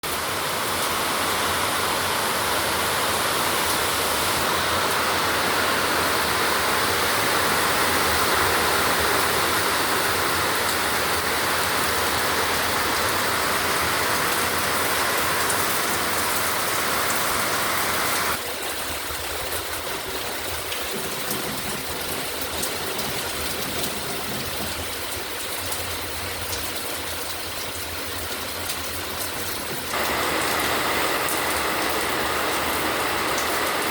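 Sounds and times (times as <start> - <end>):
heavy rain pouring: 0.0 - 33.9
rain ticks: 19.0 - 33.9.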